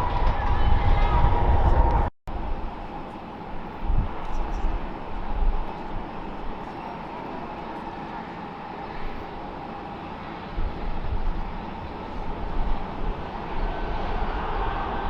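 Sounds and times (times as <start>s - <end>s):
low rumble: 0.0s - 2.8s
broad rush of noise: 0.0s - 15.0s
jet engine whine: 0.0s - 15.0s.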